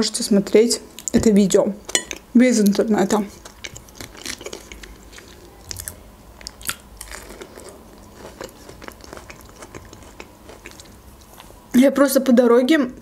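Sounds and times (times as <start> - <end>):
biting and chewing fruit: 1.9 - 11.6.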